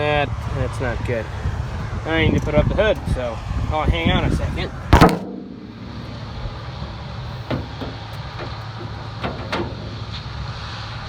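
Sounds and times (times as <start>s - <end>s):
steady low rumble: 0.0s - 10.3s
hood clicks and clunks: 4.8s - 10.6s.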